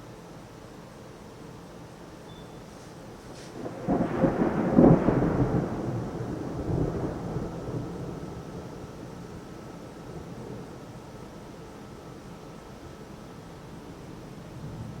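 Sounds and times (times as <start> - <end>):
rain hiss: 0.0 - 15.0
thunder rumbling: 3.3 - 10.9.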